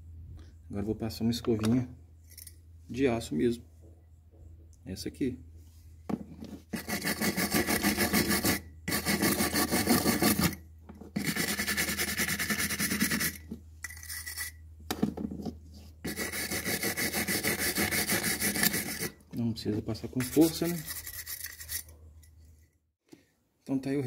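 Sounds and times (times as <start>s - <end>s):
wire brush scrubbing brake pad: 6.6s - 14.5s, 15.9s - 19.2s, 20.1s - 22.0s.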